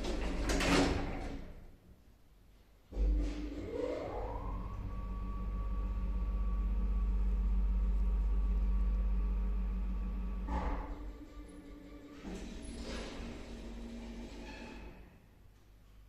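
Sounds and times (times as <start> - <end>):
hoist motor whine and hum: 3.0 - 14.4.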